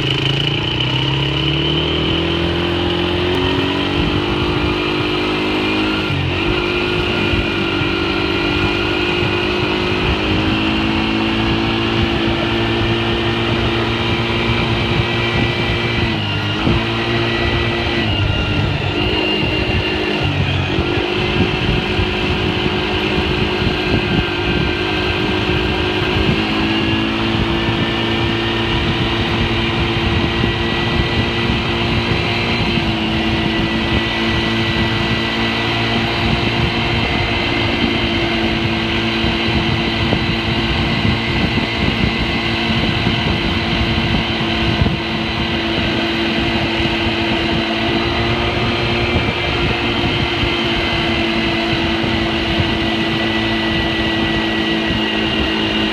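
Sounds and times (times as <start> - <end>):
engine running: 0.0 - 55.9.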